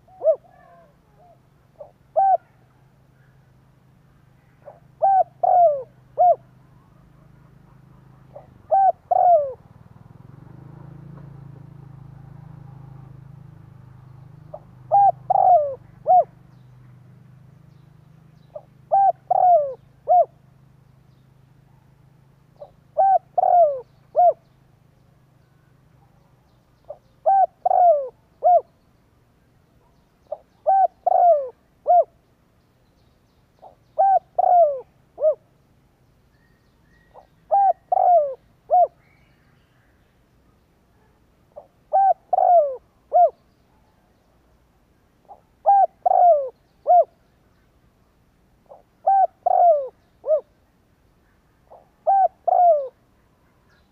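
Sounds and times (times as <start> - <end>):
dove cooing: 0.0 - 3.5, 4.4 - 13.7, 14.4 - 16.6, 18.4 - 20.5, 22.5 - 24.5, 26.8 - 28.7, 29.8 - 32.2, 33.6 - 35.5, 37.0 - 39.4, 41.6 - 43.4, 45.2 - 47.2, 48.6 - 50.6, 51.6 - 53.9.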